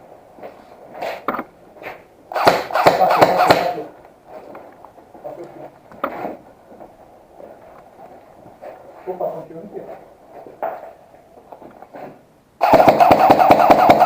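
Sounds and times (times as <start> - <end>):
airsoft rifle firing: 2.3 - 3.9, 12.6 - 14.0.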